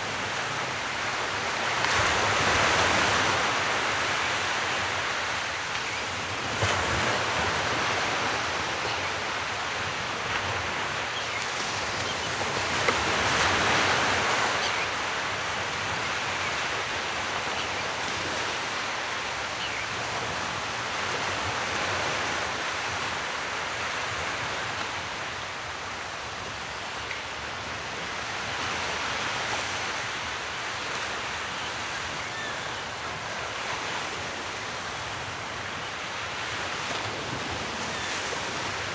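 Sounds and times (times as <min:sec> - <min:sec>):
sea waves washing ashore: 0:00.0 - 0:38.9.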